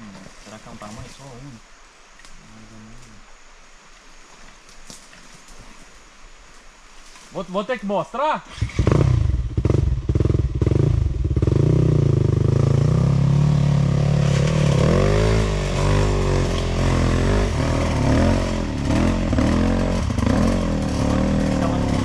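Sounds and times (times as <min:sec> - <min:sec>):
two-stroke motorcycle engine revving: 0:08.5 - 0:22.0.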